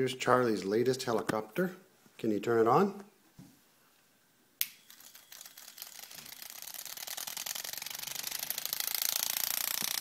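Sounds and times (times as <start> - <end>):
toy rotor clicking against paper: 4.8 - 10.0.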